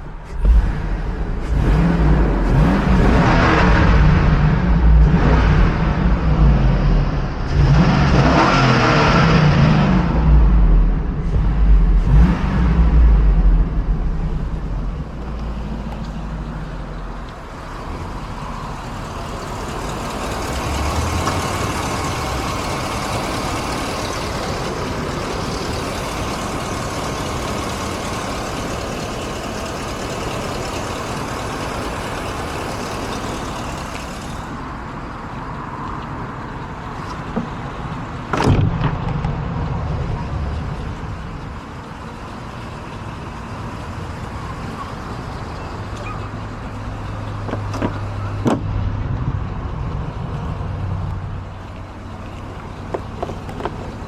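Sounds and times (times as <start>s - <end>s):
loud car engine running: 0.0s - 54.0s
road and wind noise: 0.0s - 54.0s
thump: 38.3s - 39.4s, 47.5s - 48.7s.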